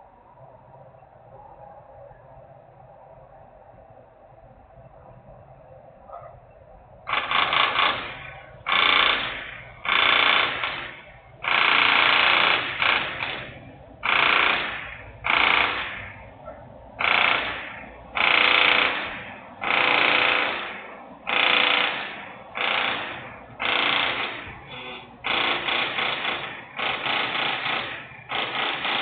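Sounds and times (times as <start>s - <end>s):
industrial machine noise bursts: 7.0s - 29.0s.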